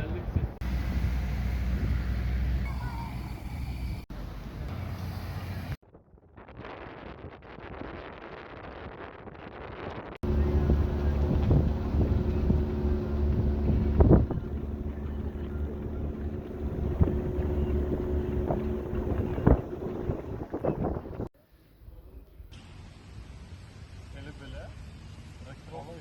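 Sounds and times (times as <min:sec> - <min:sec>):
wind noise on microphone: 0:00.0 - 0:04.0, 0:04.8 - 0:21.3
vehicle engine running: 0:00.6 - 0:05.8, 0:10.2 - 0:21.3.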